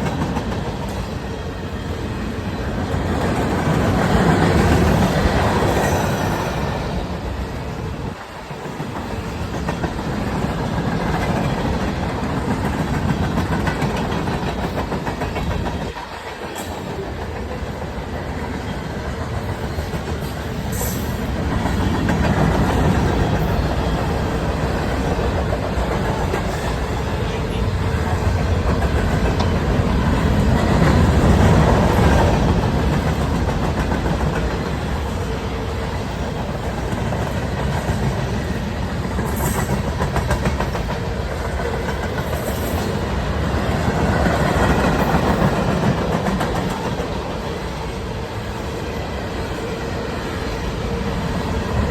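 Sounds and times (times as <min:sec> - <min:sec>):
train cars rumbling: 0:00.0 - 0:51.9
wheels clicking over rail joints: 0:08.1 - 0:48.2.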